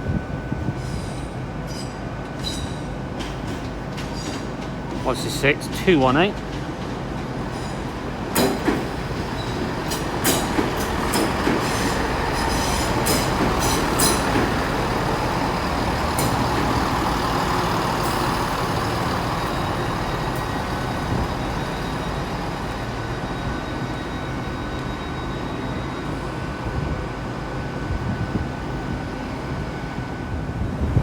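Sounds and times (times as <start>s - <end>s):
train rolling rumble: 0.0s - 31.0s
train wheels clicking over rail joints: 1.6s - 22.5s.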